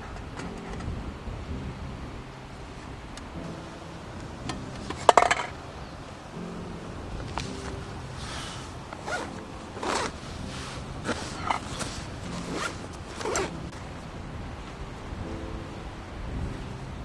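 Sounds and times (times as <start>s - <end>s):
zipper being pulled: 9.0s - 10.2s, 11.1s - 13.6s.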